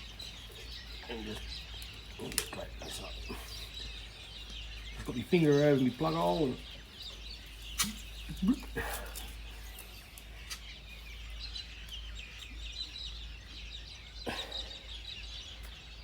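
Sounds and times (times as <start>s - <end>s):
birds chirping: 0.0s - 16.0s
sharp clicks: 7.8s - 8.5s.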